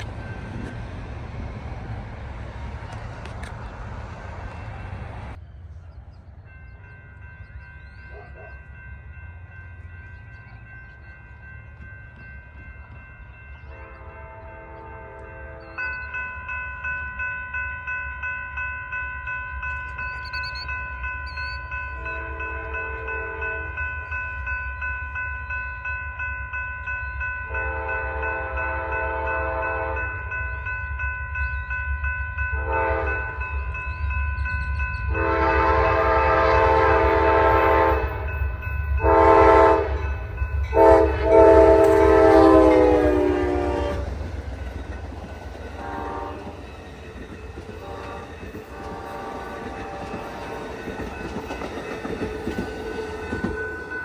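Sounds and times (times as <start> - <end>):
crossing bell ringing: 0.0 - 2.0, 4.4 - 54.0
train rumble: 0.0 - 54.0
train horn blasts: 13.7 - 15.8, 22.0 - 23.8, 27.5 - 30.2, 32.6 - 33.4, 35.1 - 38.4, 39.0 - 44.2, 45.8 - 46.6, 47.8 - 50.6.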